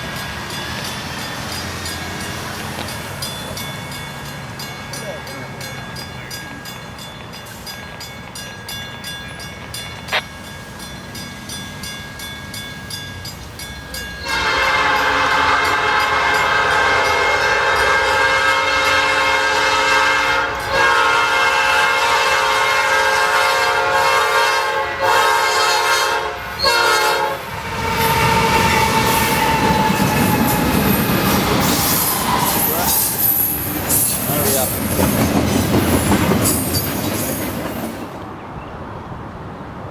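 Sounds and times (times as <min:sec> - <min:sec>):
freight train rumbling past: 0:00.0 - 0:39.9
locomotive horn blowing: 0:14.2 - 0:30.9.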